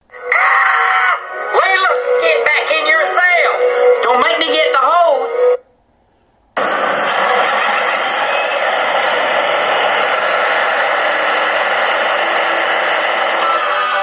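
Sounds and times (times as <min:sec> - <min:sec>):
loud rushing noise: 0:06.6 - 0:14.0.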